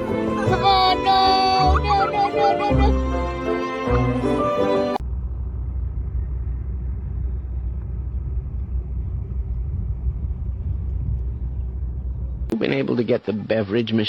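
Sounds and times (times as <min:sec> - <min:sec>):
music: 0:00.0 - 0:05.0
low rumble: 0:05.0 - 0:12.5.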